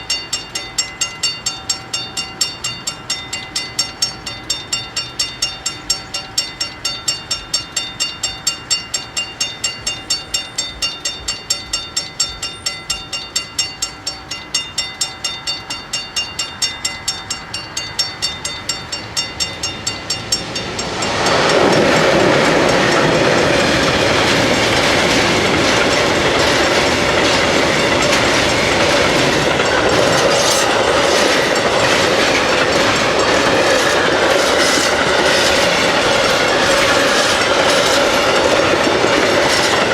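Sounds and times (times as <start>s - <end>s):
level-crossing bells ringing: 0.0s - 39.9s
train wheels clattering over rail joints: 15.5s - 39.9s.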